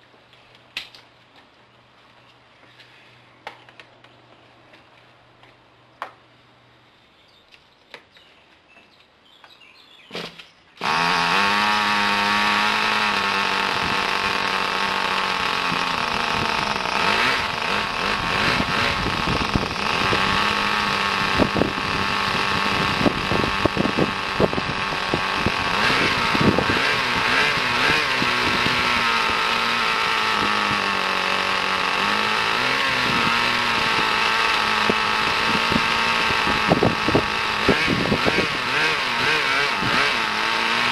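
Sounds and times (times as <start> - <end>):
model engine running high-pitched: 10.8 - 40.9.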